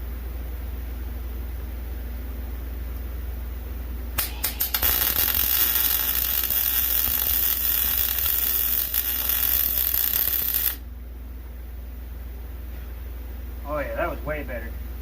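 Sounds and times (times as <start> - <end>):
electric welding arc crackling: 4.2 - 10.8.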